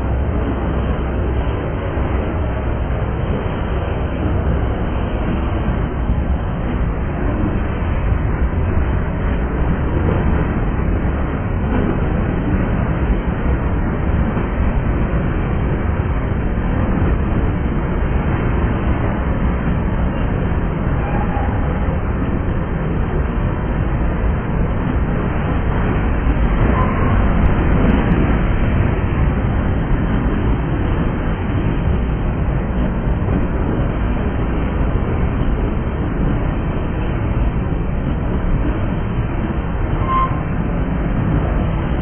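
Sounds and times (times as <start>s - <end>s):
freight train wheels rumbling: 0.0s - 42.0s
train wheel squeak: 26.7s - 27.2s, 39.9s - 40.5s.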